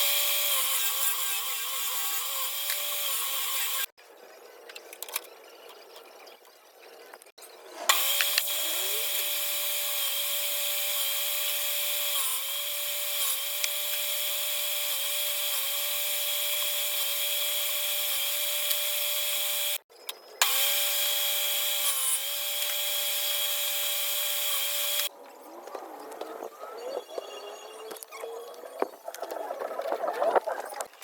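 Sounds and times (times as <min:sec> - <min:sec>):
power tool whining on wood: 0:00.0 - 0:03.9, 0:07.9 - 0:19.8, 0:20.4 - 0:25.1.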